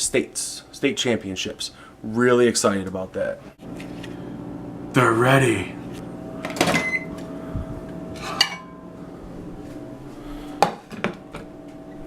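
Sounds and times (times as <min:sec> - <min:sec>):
plate clinking and clattering: 0:08.3 - 0:08.8.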